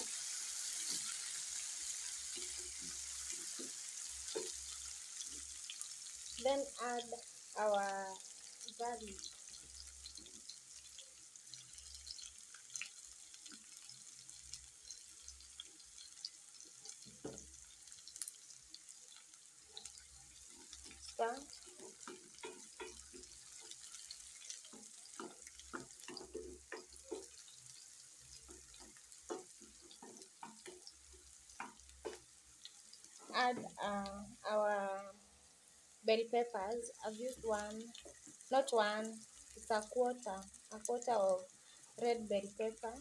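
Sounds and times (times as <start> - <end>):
wooden spoon scraping a pan: 0.0 - 5.6, 19.8 - 32.3
onions sizzling in oil: 0.0 - 43.0.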